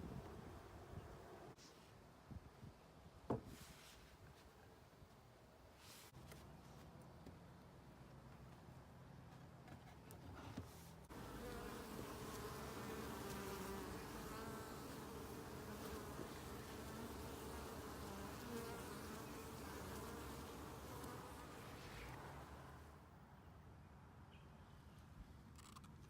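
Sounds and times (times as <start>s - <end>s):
honeybees buzzing: 11.1s - 22.5s.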